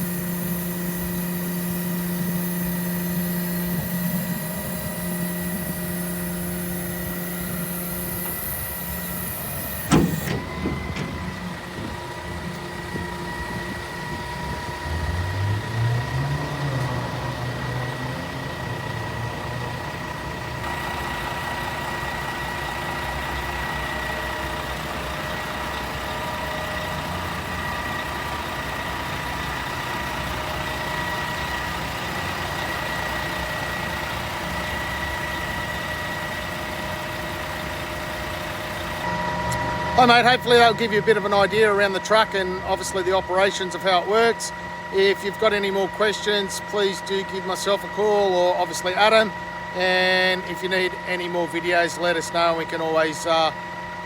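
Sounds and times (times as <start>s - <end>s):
low hydraulic motor: 0.0s - 54.0s
truck idling with whine: 0.0s - 54.0s
loud metal clunk: 9.8s - 11.3s.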